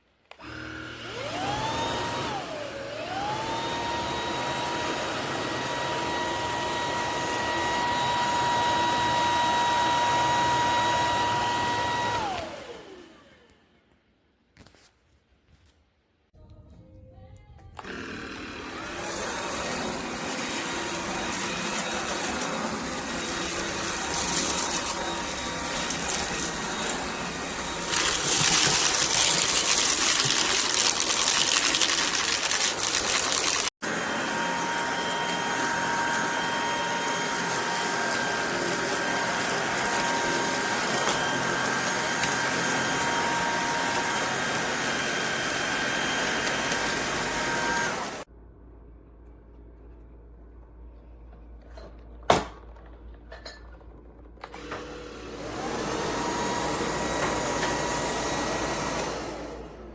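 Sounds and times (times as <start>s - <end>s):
stick vacuum motor whooshing: 0.4s - 13.6s, 54.4s - 59.8s.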